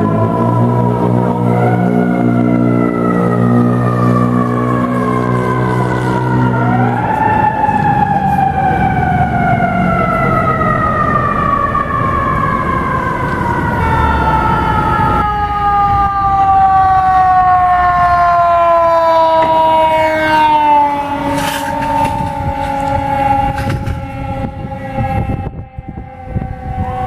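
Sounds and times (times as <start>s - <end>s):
engine and road rumble: 0.0s - 27.0s
fire truck siren: 0.0s - 27.0s
air horn blast: 5.0s - 6.6s, 13.7s - 15.6s, 18.1s - 27.0s.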